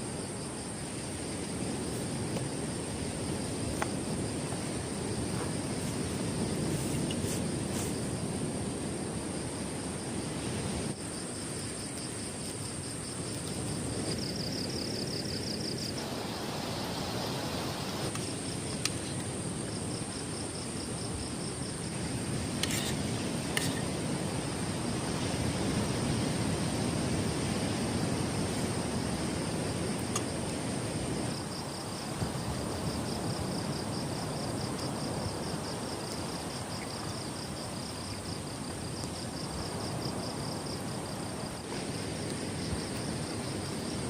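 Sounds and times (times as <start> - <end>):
cricket trilling: 0.0 - 44.0
insects buzzing: 0.0 - 44.0
wind: 0.0 - 44.0
heavy rain: 15.9 - 18.2.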